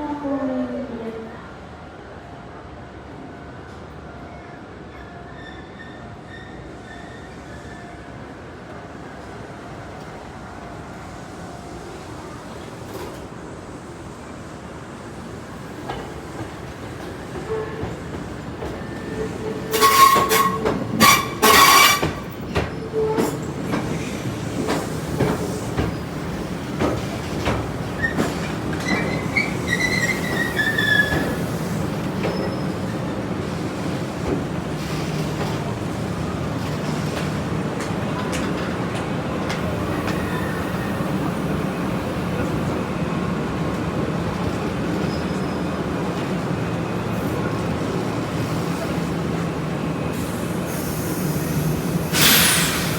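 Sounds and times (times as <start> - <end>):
low train hum: 0.0 - 52.9
train wheel squeals: 4.5 - 8.1, 15.8 - 34.1, 39.5 - 41.6, 44.3 - 46.5, 50.0 - 52.9
wheels clacking over rail joints: 15.9 - 40.9.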